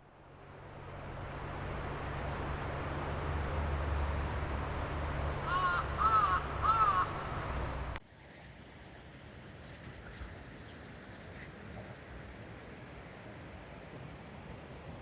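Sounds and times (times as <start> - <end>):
low outdoor rumble: 0.0 - 8.0
crow cawing: 5.4 - 7.3.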